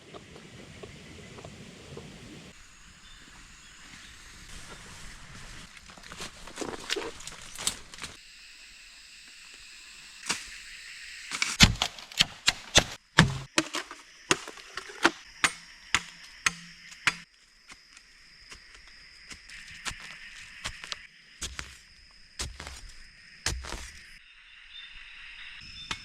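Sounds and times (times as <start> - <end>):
jungle insects droning: 0.0 - 26.0
sharp chopping strikes: 11.3 - 17.9, 20.6 - 21.8, 22.4 - 24.1.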